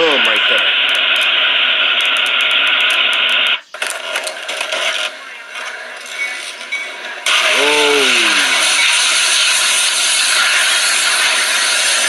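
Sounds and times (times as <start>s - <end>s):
loud rush of noise: 7.3s - 9.7s.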